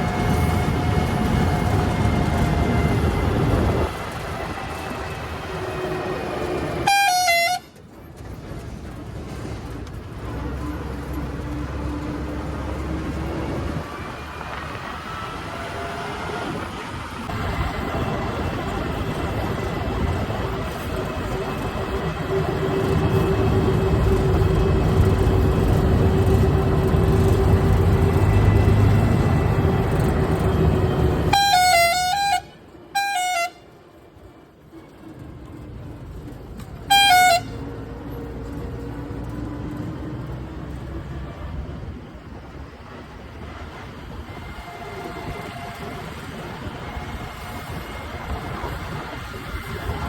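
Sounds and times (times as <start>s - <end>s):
vehicle horn wavering: 6.8s - 7.8s, 31.1s - 33.7s, 36.8s - 37.8s
heavy vehicle engine under load: 7.7s - 32.9s, 33.7s - 50.0s.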